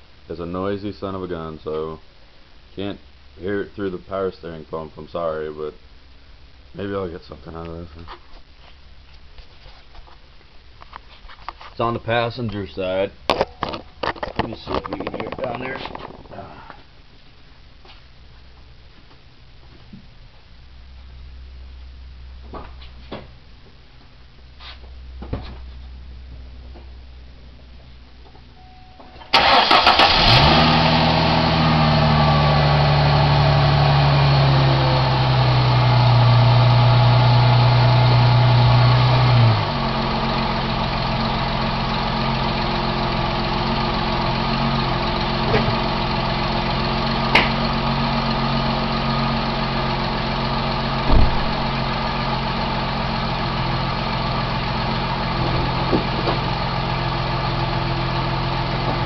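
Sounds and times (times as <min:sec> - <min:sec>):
car engine starting and idling: 0:29.1 - 0:59.0
engine knocks: 0:51.0 - 0:51.8, 0:55.4 - 0:56.5.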